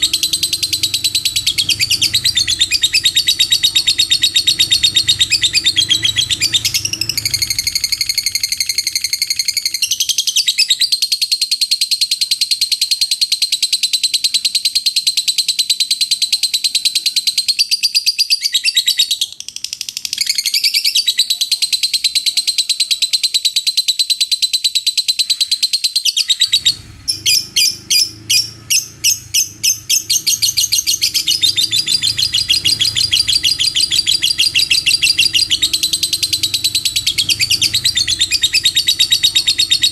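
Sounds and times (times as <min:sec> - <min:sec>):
lovebird chattering trill: 0:00.0 - 0:39.9.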